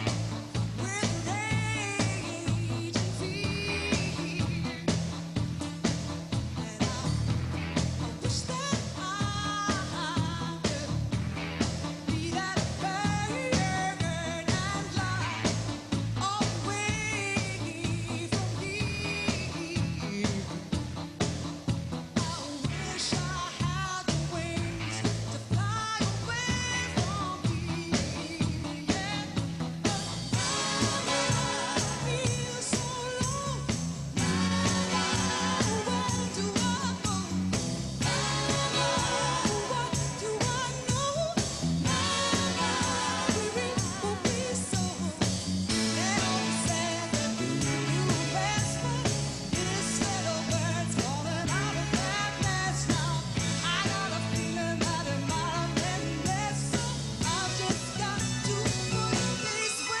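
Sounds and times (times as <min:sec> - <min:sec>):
repeating bass line: 0:00.0 - 0:08.5, 0:26.2 - 0:59.4
steady drum beat: 0:00.0 - 0:59.6
keyboards: 0:00.0 - 1:00.0
woman singing: 0:00.8 - 0:05.0, 0:06.6 - 0:07.4, 0:08.1 - 0:11.1, 0:12.0 - 0:20.8, 0:22.2 - 1:00.0.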